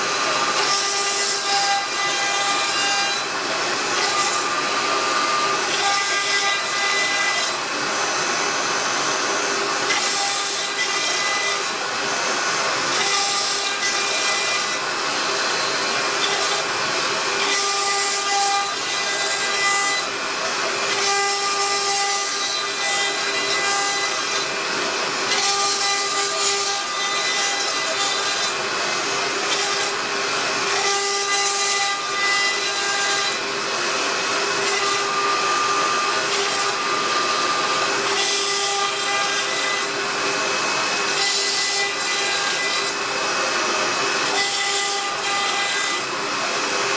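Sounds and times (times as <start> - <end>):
router spindle whine: 0.0 - 46.9.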